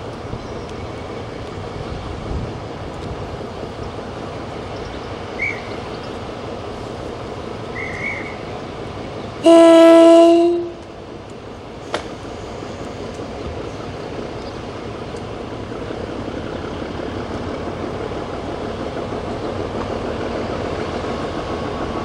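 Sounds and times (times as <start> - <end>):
train running: 0.0 - 22.0
locomotive horn blast: 9.4 - 10.8.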